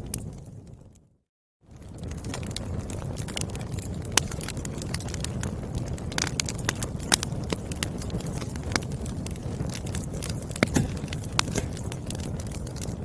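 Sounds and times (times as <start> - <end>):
firewood crackling and popping: 0.0 - 13.0
low rumble of flames: 0.0 - 13.0.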